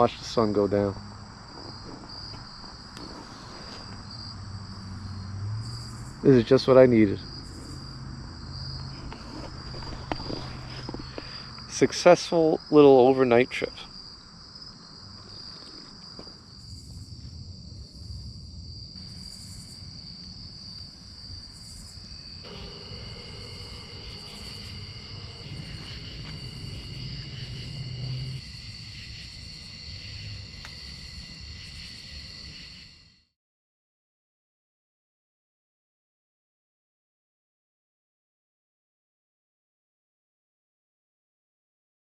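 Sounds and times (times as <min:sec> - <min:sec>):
crickets and insects chirring: 0:00.0 - 0:33.3
fast pulsing insect chirp: 0:00.0 - 0:33.3
low rumble: 0:22.4 - 0:30.7.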